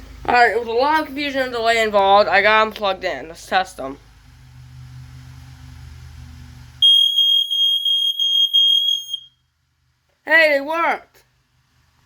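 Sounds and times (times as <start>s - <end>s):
high-pitched smoke alarm tone: 6.8s - 9.4s.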